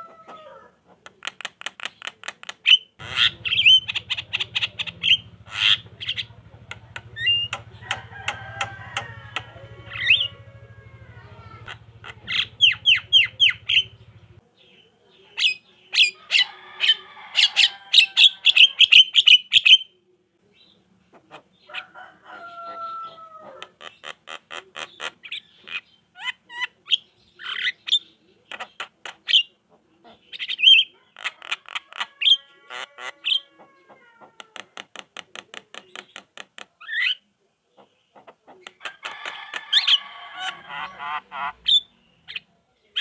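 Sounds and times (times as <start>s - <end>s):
myna chattering song: 0.8s - 14.4s.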